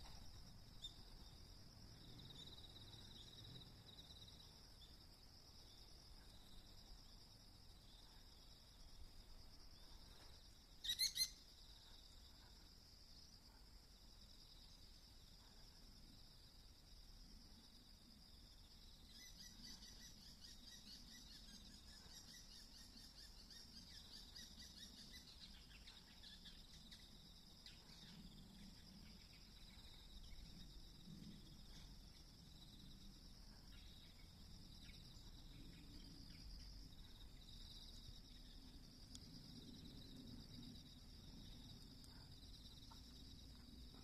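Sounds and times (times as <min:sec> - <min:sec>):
insects trilling: 0:00.0 - 0:44.0
short bird chirps: 0:10.8 - 0:11.4.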